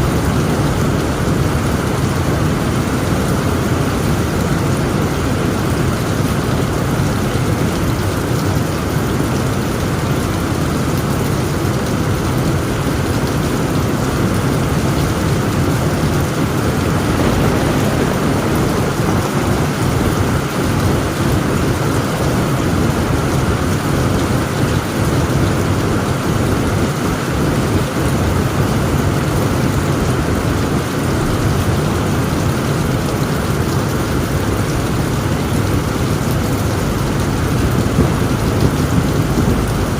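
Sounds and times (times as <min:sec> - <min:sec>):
heavy rain on a tent roof: 0:00.0 - 0:39.9
low rumble of thunder: 0:09.6 - 0:39.9.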